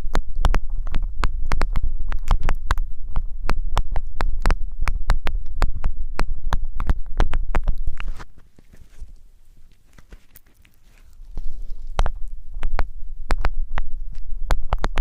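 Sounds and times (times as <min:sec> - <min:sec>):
low rumble: 0:00.0 - 0:08.1, 0:11.0 - 0:15.0
hands tapping on microphone: 0:00.0 - 0:08.2, 0:11.3 - 0:15.0.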